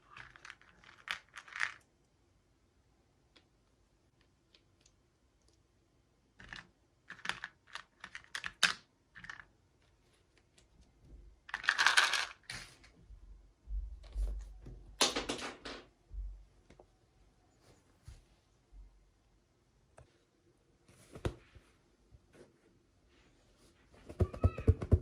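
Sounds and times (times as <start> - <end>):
plastic toy pieces clicking: 6.4 - 9.5, 11.5 - 12.4.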